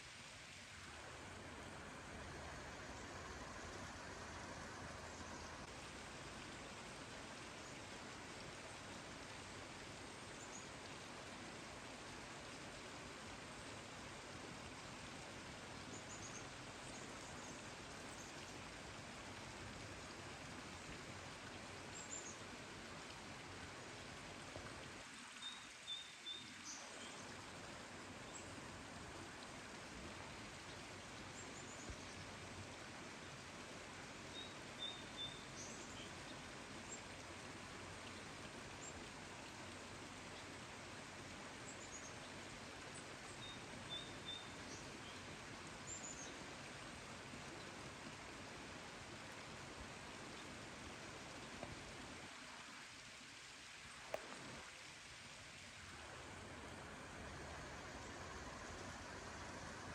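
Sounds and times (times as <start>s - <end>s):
steady hiss: 0.0s - 59.9s
small birds chirping faintly: 0.1s - 59.9s.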